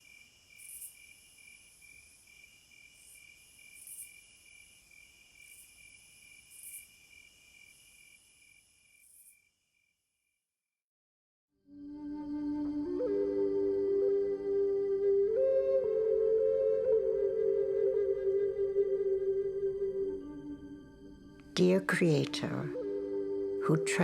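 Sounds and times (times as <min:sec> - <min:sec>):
cricket chorus chirping: 0:00.0 - 0:10.4.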